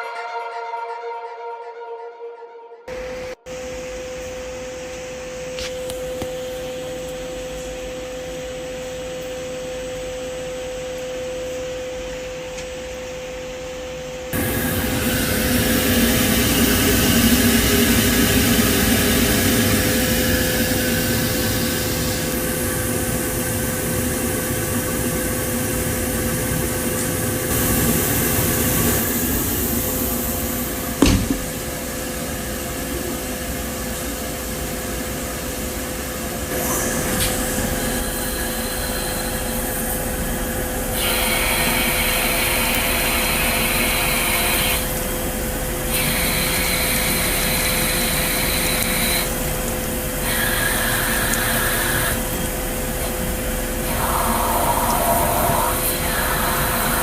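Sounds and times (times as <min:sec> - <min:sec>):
machine hum: 0:02.9 - 0:57.0
sharp knock: 0:31.0 - 0:31.6.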